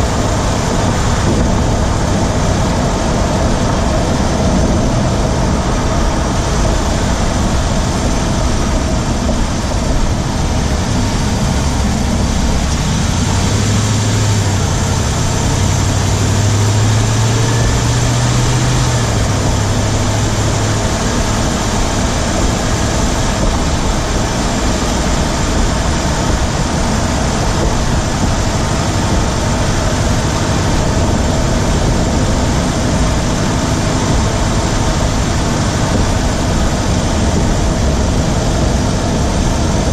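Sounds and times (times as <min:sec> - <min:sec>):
car engine running: 0:00.0 - 0:39.9
engine ticking: 0:00.0 - 0:39.9
low hum rising and falling: 0:00.0 - 0:39.9.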